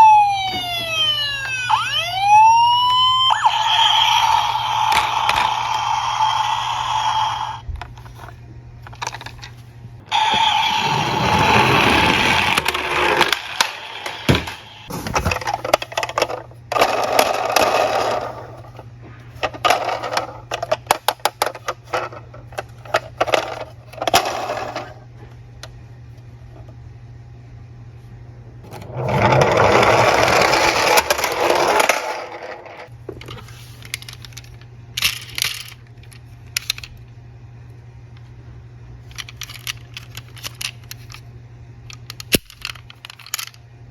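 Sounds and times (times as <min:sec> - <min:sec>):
steady siren tone: 0:00.0 - 0:07.6, 0:10.1 - 0:12.0
toy cars rolling down slope: 0:00.8 - 0:07.6, 0:10.1 - 0:14.6, 0:15.4 - 0:18.8, 0:28.7 - 0:32.9
toy cars clattering together: 0:03.6 - 0:07.2, 0:11.5 - 0:18.8, 0:19.4 - 0:25.0, 0:29.0 - 0:36.9, 0:39.1 - 0:41.2, 0:41.9 - 0:43.6.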